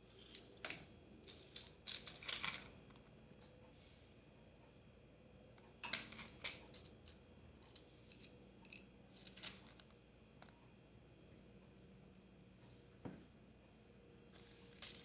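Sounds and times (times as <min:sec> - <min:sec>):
small clicks and scrapes of tools: 0:05.8 - 0:10.6.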